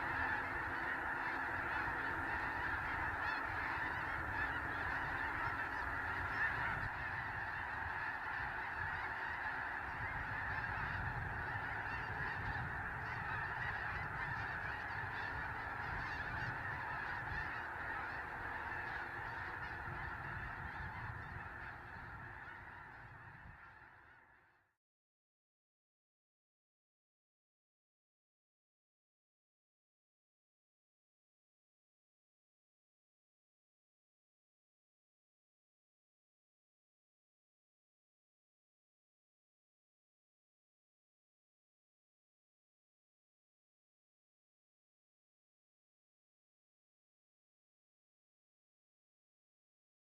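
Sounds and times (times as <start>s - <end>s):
flock of geese honking: 0.0s - 24.8s.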